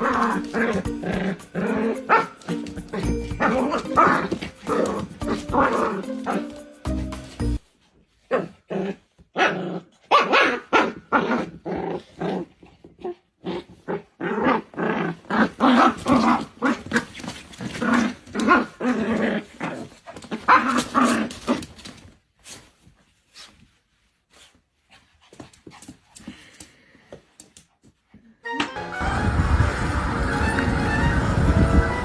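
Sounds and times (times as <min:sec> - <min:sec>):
dog growling and barking: 0:08.4 - 0:12.6, 0:13.4 - 0:16.0.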